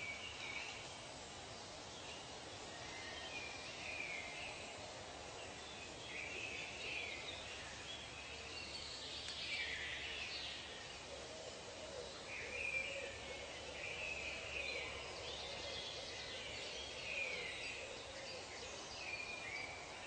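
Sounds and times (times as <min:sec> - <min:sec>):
steady background hiss: 0:00.0 - 0:20.0
bird calls: 0:06.1 - 0:19.8.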